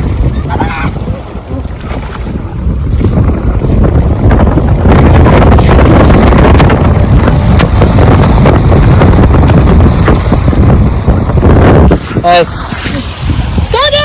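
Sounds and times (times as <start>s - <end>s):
wind buffeting microphone: 0.0s - 14.0s
truck running noise: 3.3s - 14.0s.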